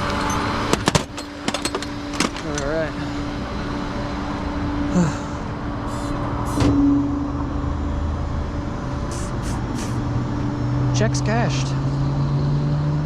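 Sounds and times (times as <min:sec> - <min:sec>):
truck engine idling: 0:00.0 - 0:10.4
short hisses: 0:09.1 - 0:10.0.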